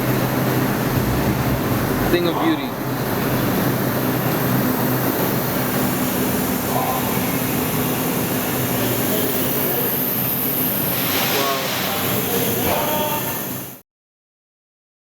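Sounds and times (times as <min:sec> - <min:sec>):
steady mechanical hum: 0:00.0 - 0:13.8.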